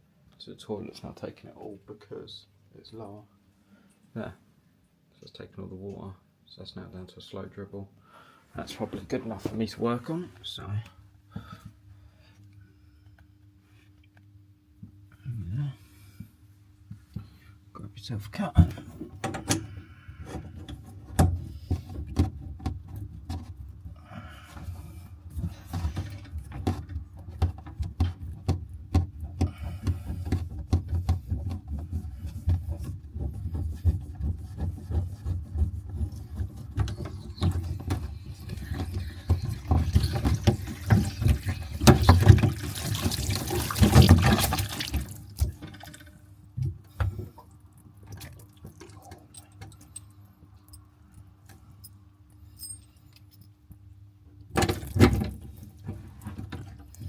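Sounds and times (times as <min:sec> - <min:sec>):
water rushing from pipe: 0:38.4 - 0:46.0.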